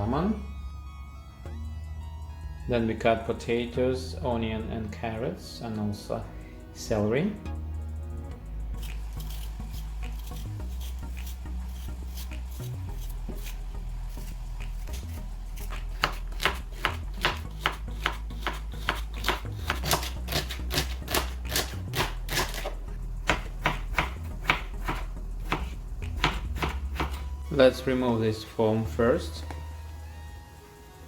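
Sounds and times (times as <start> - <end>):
knife chopping on cutting board: 14.2 - 27.3.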